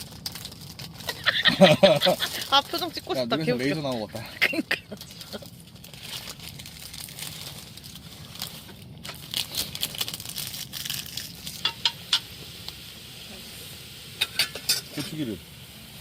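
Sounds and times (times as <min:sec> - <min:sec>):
crinkling: 0:00.0 - 0:11.9.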